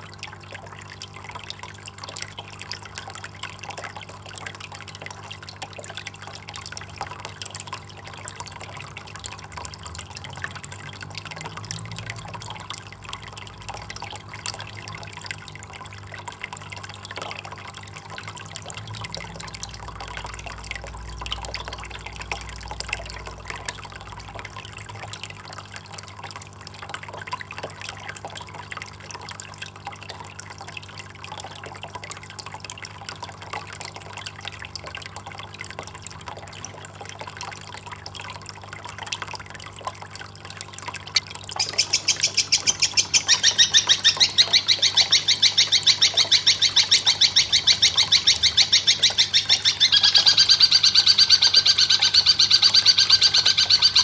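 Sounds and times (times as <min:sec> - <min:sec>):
water trickling and dripping: 0:00.0 - 0:54.0.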